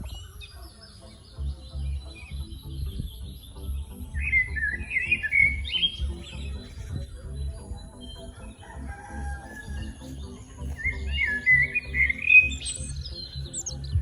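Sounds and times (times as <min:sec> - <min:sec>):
birds chirping: 0:00.0 - 0:14.0
music with low pulsing beat: 0:00.0 - 0:14.0
warbling bird call: 0:04.1 - 0:06.9, 0:08.0 - 0:13.8.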